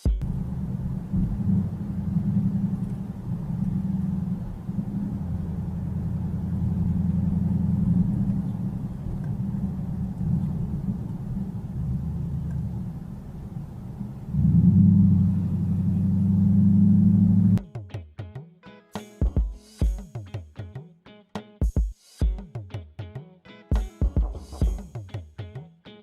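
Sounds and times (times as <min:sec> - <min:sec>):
car engine and road noise: 0:00.0 - 0:17.6.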